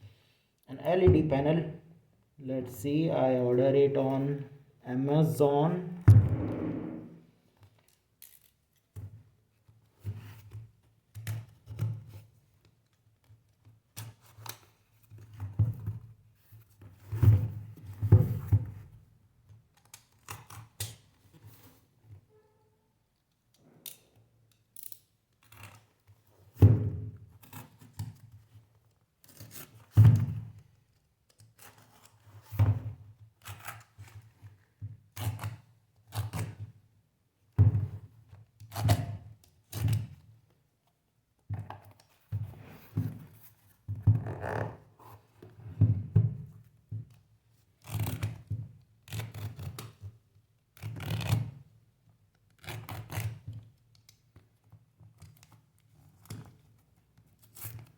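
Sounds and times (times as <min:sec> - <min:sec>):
loud thuds: 0:06.0 - 0:07.2.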